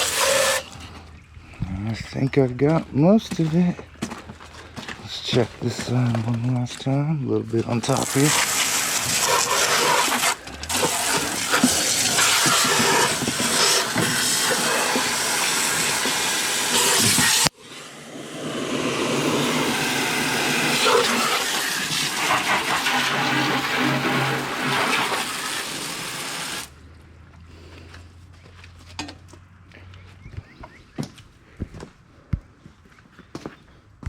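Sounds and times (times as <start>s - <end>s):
hose spraying water on metal: 0.0s - 0.7s, 7.7s - 26.7s.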